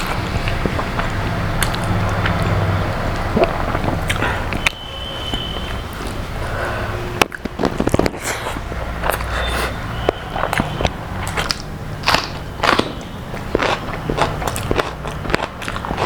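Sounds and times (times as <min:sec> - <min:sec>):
crunching and chewing food: 0:00.0 - 0:06.2, 0:07.2 - 0:16.0.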